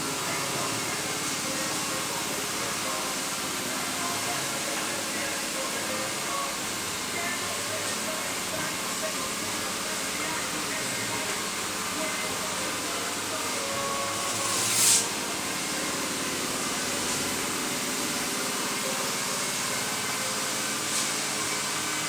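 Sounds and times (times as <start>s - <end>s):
steady machine noise: 0.0s - 22.0s
hissing air burst: 9.7s - 18.2s.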